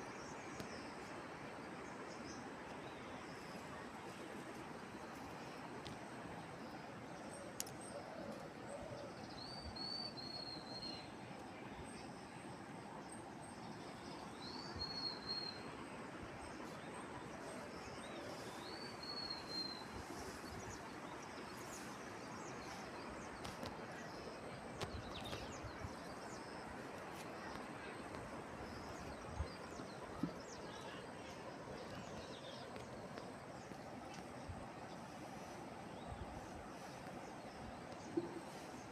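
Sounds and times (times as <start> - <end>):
outdoor ambient noise: 0.0 - 38.9
faint clicks: 7.5 - 8.5.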